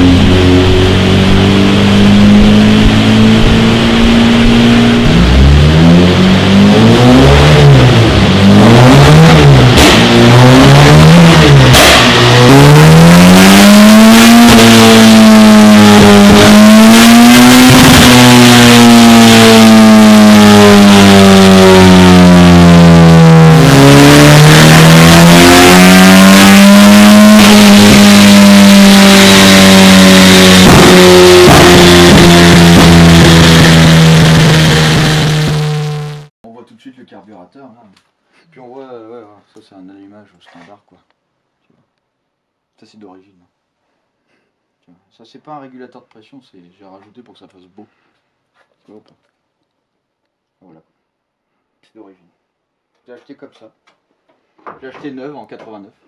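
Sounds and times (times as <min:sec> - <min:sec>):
car engine revving: 0:00.0 - 0:36.3.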